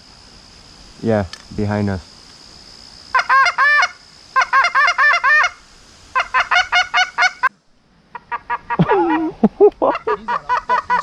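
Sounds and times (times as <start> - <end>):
goose call honks and clucks: 3.2 - 5.6, 6.2 - 7.5, 8.1 - 9.3, 9.9 - 11.0.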